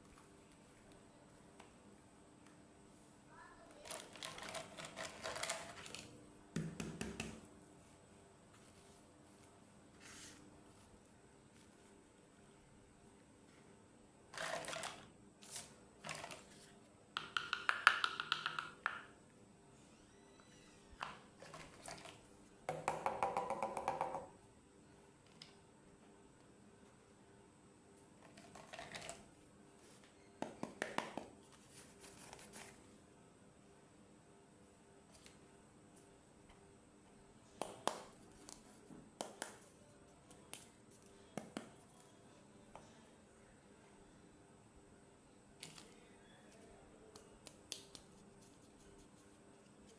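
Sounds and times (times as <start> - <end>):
plastic toy pieces clicking and rattling: 3.9 - 5.9.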